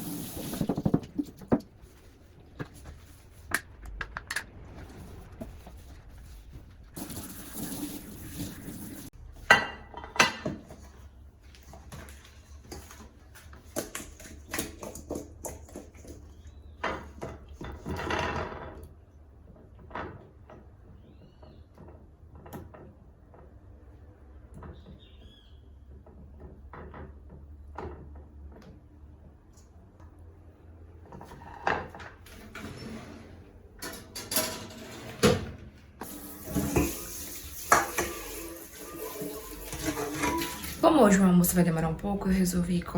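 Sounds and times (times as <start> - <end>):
dishes and utensils clinking: 36.0 - 41.2.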